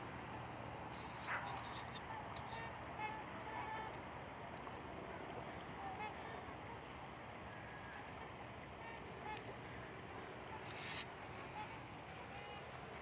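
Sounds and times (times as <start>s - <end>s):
steady background hiss: 0.0s - 13.0s
waterfowl calling faintly: 0.9s - 3.9s, 10.5s - 12.7s.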